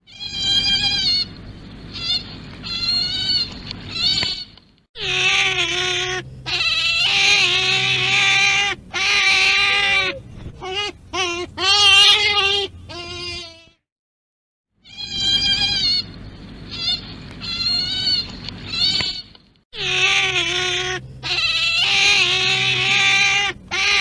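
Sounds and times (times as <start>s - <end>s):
high-pitched animal cries: 0.0s - 1.3s, 1.9s - 13.8s, 14.8s - 16.1s, 16.7s - 24.0s
long low animal cries: 0.0s - 1.3s, 5.0s - 13.8s, 14.8s - 16.1s, 19.8s - 24.0s.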